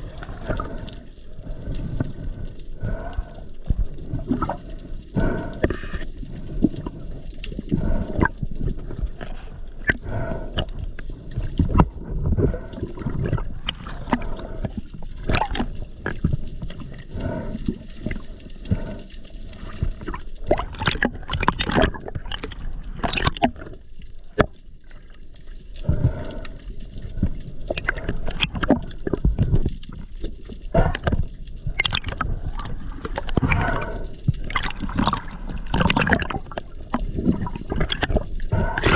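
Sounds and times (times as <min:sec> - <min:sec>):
water sloshing and gurgling: 0:00.0 - 0:38.9
splashes and knocks: 0:20.5 - 0:23.6.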